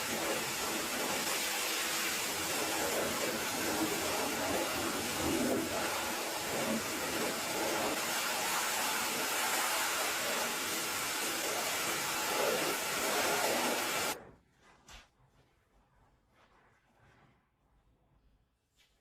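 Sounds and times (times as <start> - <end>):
pressure washer spraying: 0.0 - 14.2.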